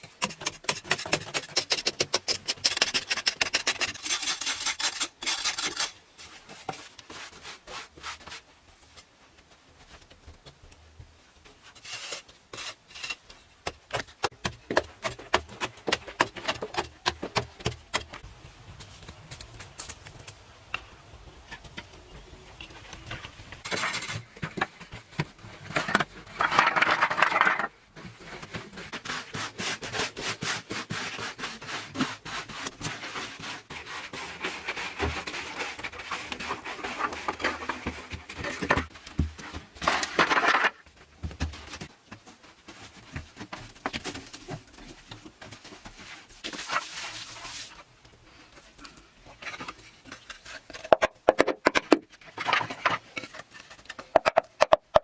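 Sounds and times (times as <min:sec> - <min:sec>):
scraping and rubbing: 0:00.0 - 0:08.5, 0:11.6 - 0:18.2, 0:22.6 - 0:40.8, 0:41.7 - 0:48.4.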